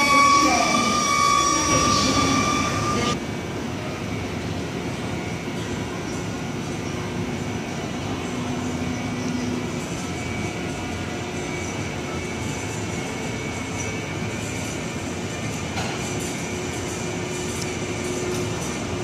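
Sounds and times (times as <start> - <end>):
electric train humming: 0.0 - 19.0.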